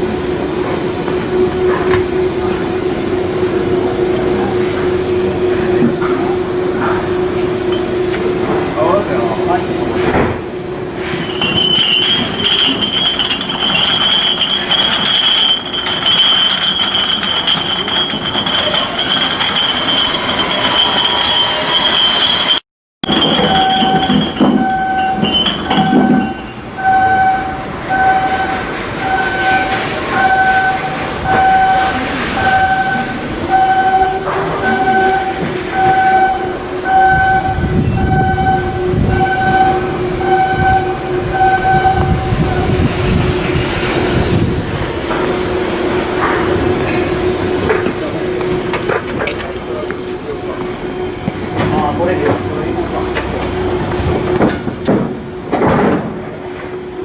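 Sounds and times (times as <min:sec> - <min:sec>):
low machinery rumble: 0:10.5 - 0:27.1
high-pitched machine whine: 0:11.0 - 0:54.7
electronic warning beep: 0:23.1 - 0:42.8.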